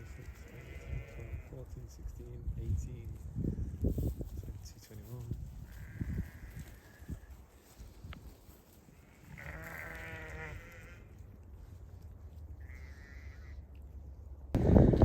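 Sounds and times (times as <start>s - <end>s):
sheep bleating: 0.0s - 1.6s, 5.7s - 7.3s, 9.0s - 11.2s, 12.6s - 13.6s.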